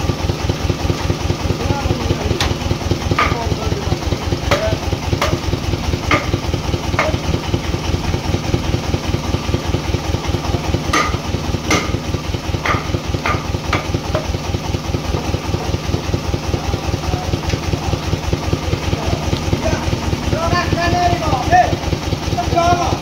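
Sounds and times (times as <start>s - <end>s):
engine idling: 0.0s - 23.0s
sharp knocks: 2.4s - 3.6s, 4.5s - 7.6s, 10.9s - 14.4s.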